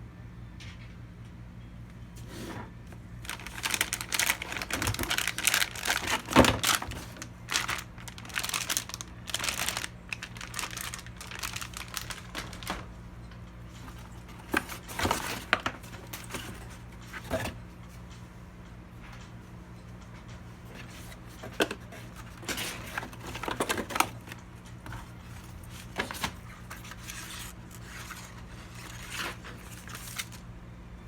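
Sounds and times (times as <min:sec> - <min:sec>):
low electrical hum: 0:00.0 - 0:31.0
plastic packaging crinkling: 0:03.2 - 0:13.0, 0:13.7 - 0:17.5, 0:20.7 - 0:30.5.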